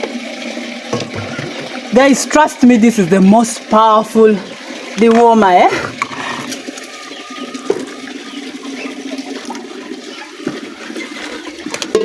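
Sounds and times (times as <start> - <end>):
liquid pouring and splashing: 0.0 - 12.0
small knocks: 0.9 - 1.8.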